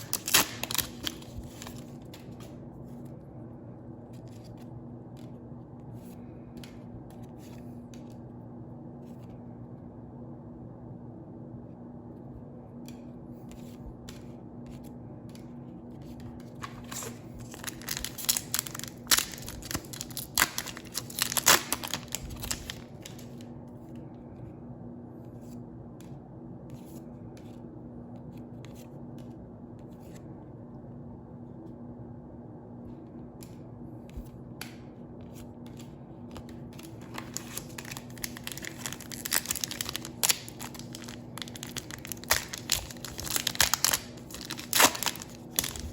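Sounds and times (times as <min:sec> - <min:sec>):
foil pack crinkling and tearing: 0:00.0 - 0:01.9, 0:16.6 - 0:23.4, 0:36.8 - 0:45.9
steady low hum: 0:00.0 - 0:45.9.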